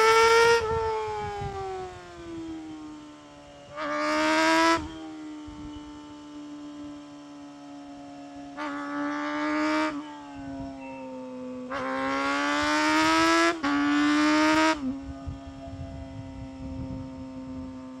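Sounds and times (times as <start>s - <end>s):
motorcycle engine revving: 0.0s - 2.8s, 3.7s - 6.2s, 8.4s - 18.0s.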